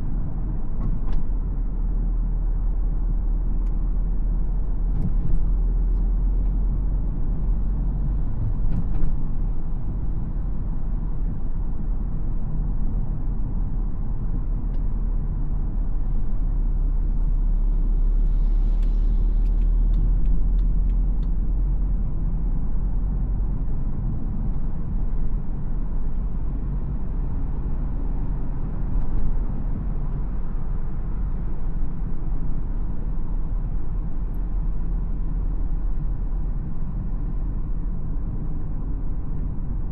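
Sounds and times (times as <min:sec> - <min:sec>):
diesel engine rumble while driving: 0:00.0 - 0:39.9
tyres rumbling on road: 0:00.0 - 0:39.9.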